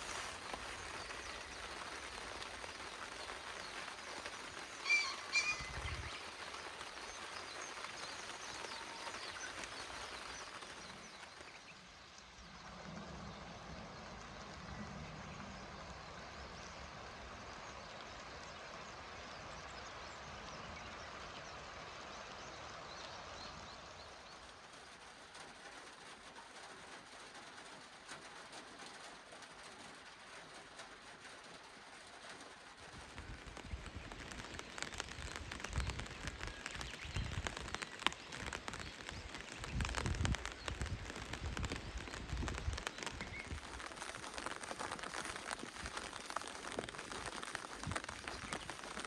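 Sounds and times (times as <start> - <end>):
rain hissing: 0.0 - 49.0
drops pattering on hard surface: 33.0 - 49.0.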